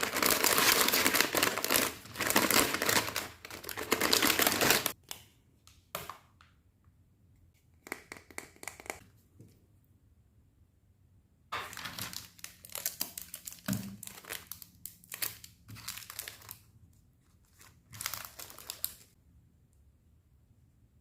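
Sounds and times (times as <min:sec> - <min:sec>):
packaging crinkling: 0:00.0 - 0:05.0, 0:11.6 - 0:16.7, 0:17.4 - 0:19.2.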